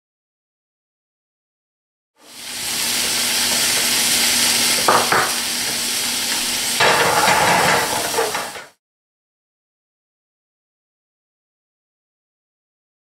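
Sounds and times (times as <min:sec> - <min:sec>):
shrimp sizzling in pan: 0:02.2 - 0:08.8.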